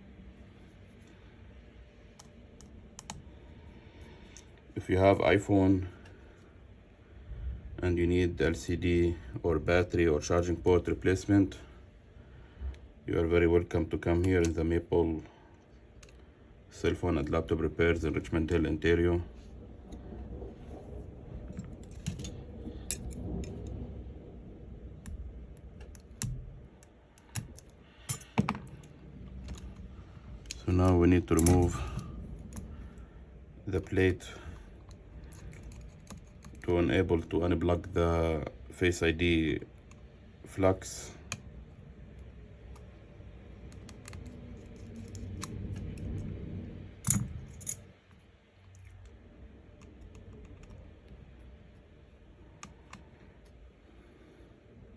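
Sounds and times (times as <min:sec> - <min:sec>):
small tools clicking on metal: 0:25.8 - 0:29.6.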